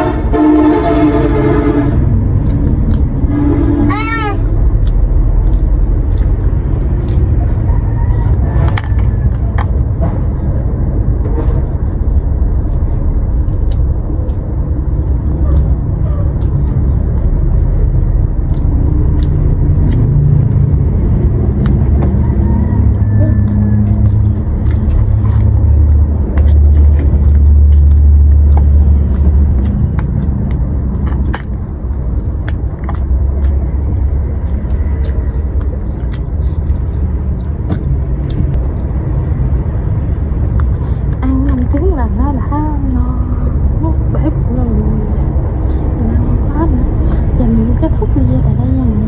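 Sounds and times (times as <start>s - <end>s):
loud low rumble: 0.0s - 49.0s
sharp mouth clicks: 2.4s - 3.8s, 4.4s - 9.8s, 12.0s - 22.2s, 23.1s - 39.0s, 40.5s - 41.9s
chewing: 2.4s - 10.1s, 11.3s - 39.5s.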